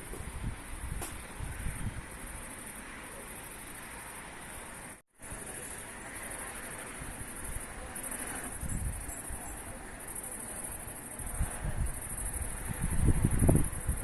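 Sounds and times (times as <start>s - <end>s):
wind rumbling on microphone: 0.0s - 3.7s, 6.9s - 10.0s, 10.7s - 14.0s.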